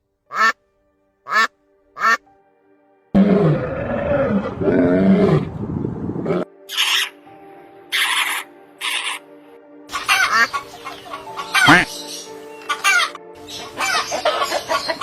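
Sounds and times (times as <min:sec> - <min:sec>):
faint background music: 0:00.0 - 0:15.0
duck quacking: 0:00.3 - 0:00.6, 0:01.3 - 0:02.2, 0:09.9 - 0:11.9.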